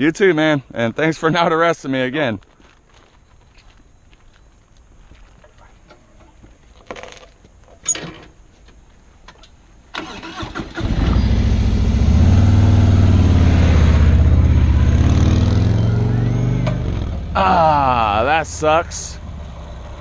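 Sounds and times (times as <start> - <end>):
small engine cranking and idling: 10.0 - 11.6.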